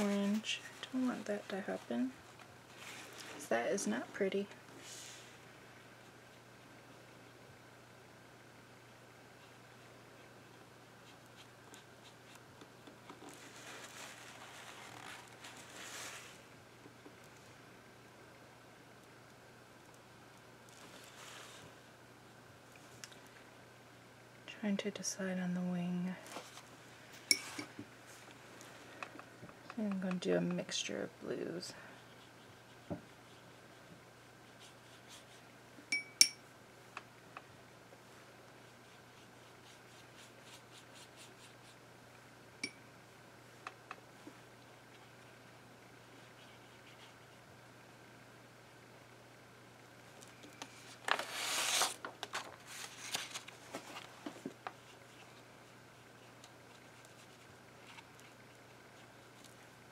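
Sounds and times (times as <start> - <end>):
low steady hum: 0.0 - 59.9
brush scratching on paper: 9.4 - 12.4, 31.9 - 35.5, 38.6 - 41.8, 46.0 - 47.4, 54.7 - 59.6
brush taps and dabs: 32.0 - 35.5.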